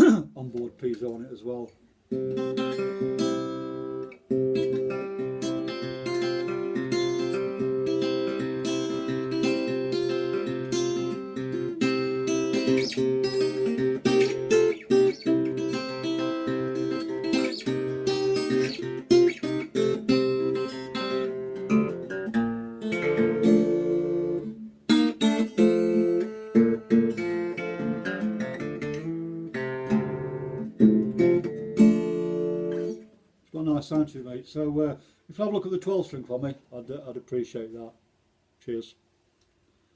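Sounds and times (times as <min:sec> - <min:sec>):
acoustic guitar strummed chords: 0:02.1 - 0:33.2.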